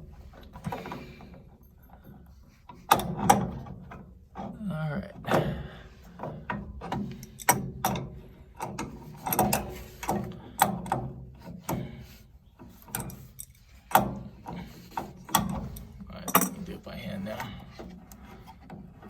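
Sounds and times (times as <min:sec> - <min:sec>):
wrench metallic clicks and knocks: 0:00.4 - 0:04.5, 0:06.0 - 0:12.0, 0:12.6 - 0:16.8.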